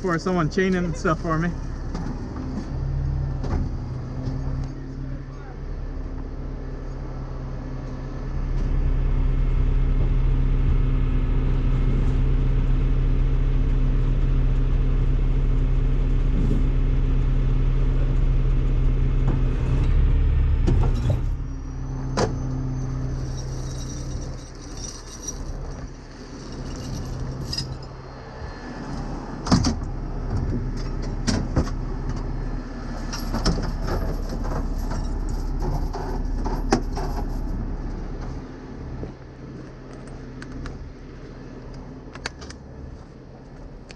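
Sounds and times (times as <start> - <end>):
diesel truck engine running: 0.0 - 43.9
chains rattling: 22.3 - 28.0, 32.9 - 38.4.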